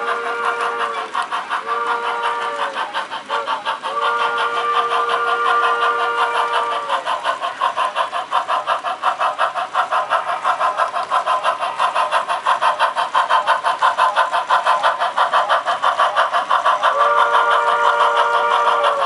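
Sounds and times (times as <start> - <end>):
steam whistle blowing: 0.0 - 7.0, 16.9 - 19.0
model steam locomotive chuffs: 0.0 - 19.0.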